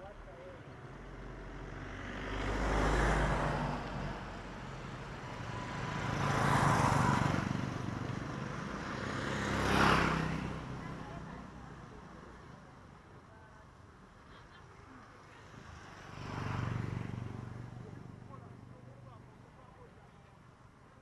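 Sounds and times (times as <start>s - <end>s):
road vehicles passing: 0.0s - 21.0s.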